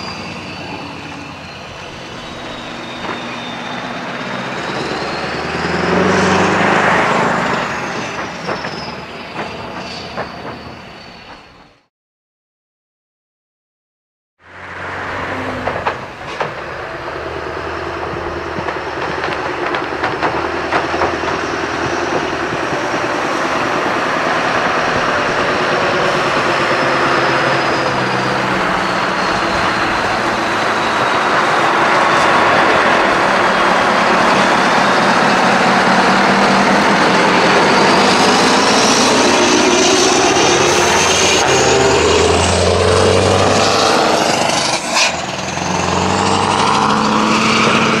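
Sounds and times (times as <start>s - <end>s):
diesel truck engine running: 14.8s - 48.0s.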